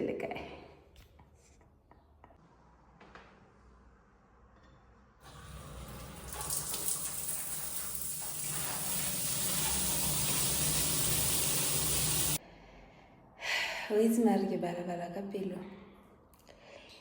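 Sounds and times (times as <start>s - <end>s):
shower water spraying: 5.2s - 12.4s.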